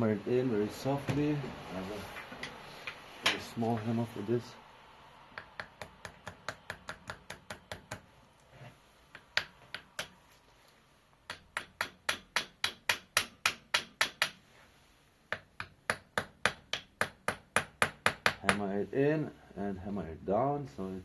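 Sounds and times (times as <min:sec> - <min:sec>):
small hammer tapping metal: 0:05.4 - 0:08.1.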